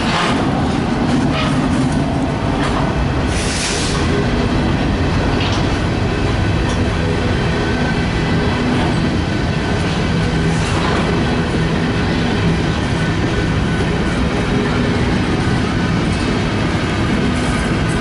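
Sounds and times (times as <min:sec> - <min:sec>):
freight train rumbling on rails: 0:00.0 - 0:18.0.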